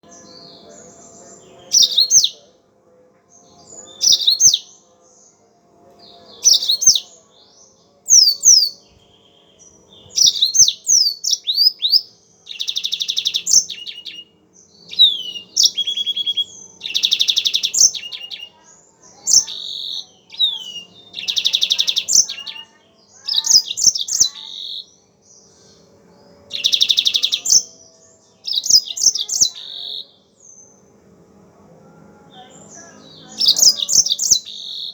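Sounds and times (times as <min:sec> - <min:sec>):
canary singing: 0:00.0 - 0:02.6, 0:03.3 - 0:31.0, 0:32.0 - 0:34.9
faint steady hum: 0:00.0 - 0:34.9.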